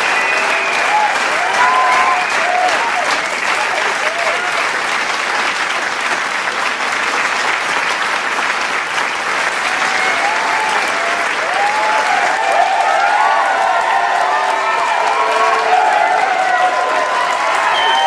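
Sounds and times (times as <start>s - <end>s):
cheers and whoops: 0.0s - 4.6s, 9.6s - 18.0s
crowd clapping: 0.0s - 18.0s.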